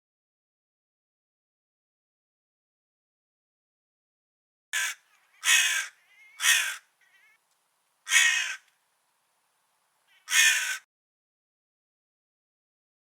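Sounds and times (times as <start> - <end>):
crow cawing: 4.8 - 7.4, 8.0 - 8.7, 10.1 - 10.9.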